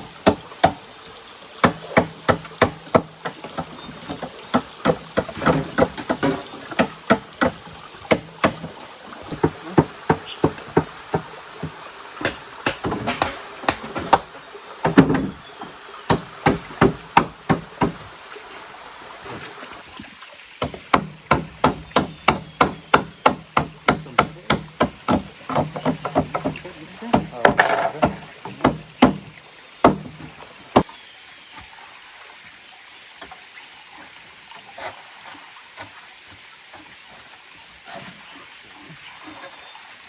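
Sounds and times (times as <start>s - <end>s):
steady background hiss: 0.0s - 40.0s
tool striking wood: 1.6s - 15.4s, 16.1s - 18.0s, 20.6s - 30.9s.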